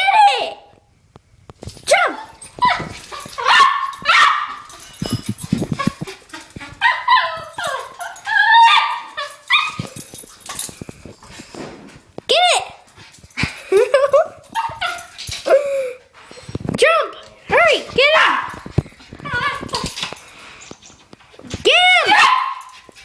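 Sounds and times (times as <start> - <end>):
dog barking and whining: 1.8 - 10.3, 14.4 - 15.6, 17.6 - 20.0, 21.7 - 22.9.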